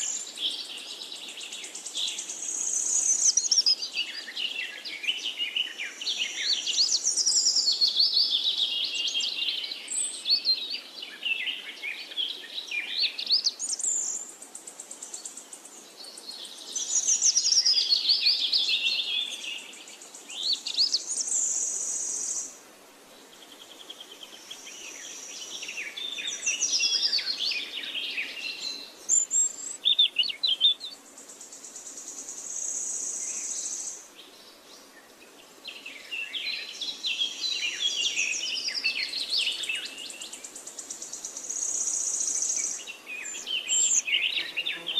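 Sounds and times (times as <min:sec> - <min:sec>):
birds singing: 0:00.0 - 0:22.5, 0:23.2 - 0:44.9.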